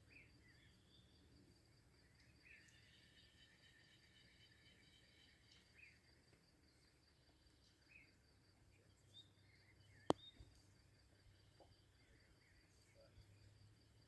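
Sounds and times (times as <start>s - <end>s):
bird chirps: 2.0s - 6.1s, 6.7s - 10.6s.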